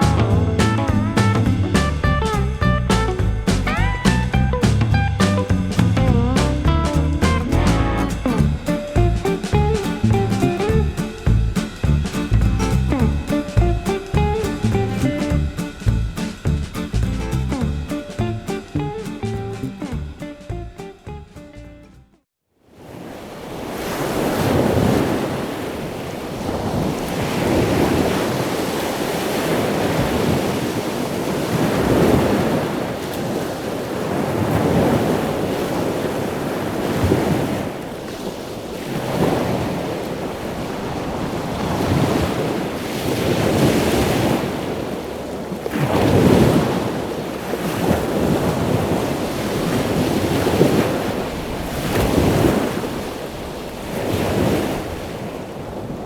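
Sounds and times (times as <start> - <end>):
surf breaking on a beach: 0.0 - 20.6, 22.6 - 56.0
wind buffeting microphone: 22.9 - 56.0.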